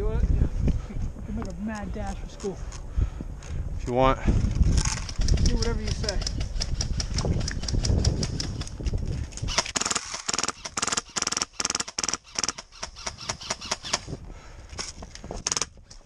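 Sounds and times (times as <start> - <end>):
airsoft gun firing bursts: 9.5 - 14.1.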